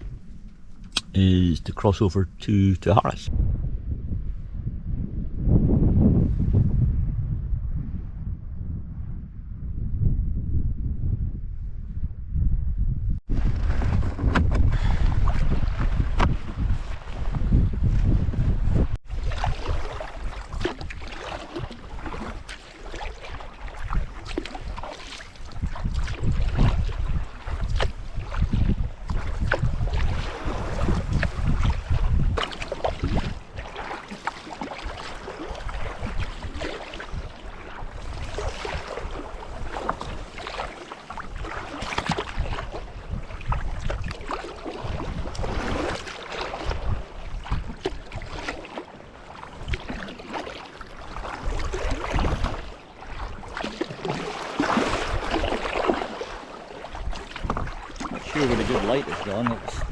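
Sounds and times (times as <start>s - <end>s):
water sloshing against hull: 0.0s - 3.3s, 13.3s - 59.9s
wind buffeting microphone: 0.0s - 22.5s, 23.3s - 34.0s, 34.8s - 50.0s, 50.8s - 56.1s, 57.0s - 59.9s
paddle strokes splashing: 13.4s - 59.9s.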